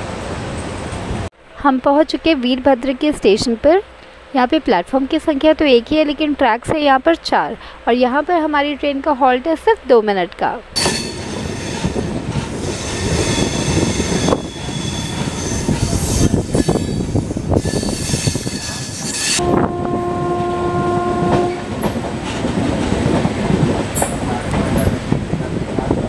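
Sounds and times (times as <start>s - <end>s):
train wheels clattering over tracks: 10.8s - 19.4s, 21.3s - 26.0s
wheels squealing on curve: 10.8s - 19.4s
train horn blast: 19.3s - 22.0s.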